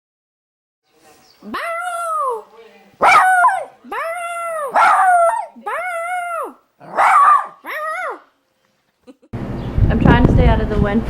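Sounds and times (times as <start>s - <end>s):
dog howling: 1.4s - 8.3s.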